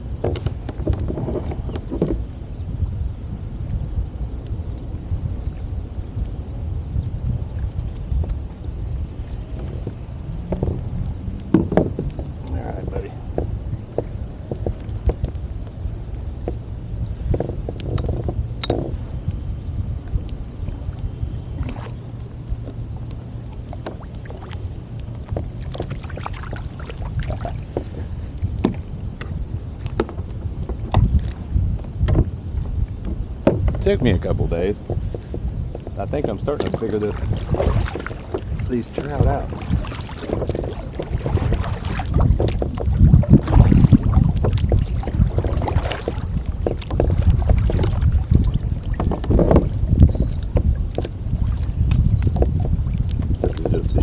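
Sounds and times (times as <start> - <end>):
water and wind rumble: 0.0 - 54.0
gear knocking against hull: 9.5 - 12.3, 25.3 - 29.3, 29.9 - 54.0.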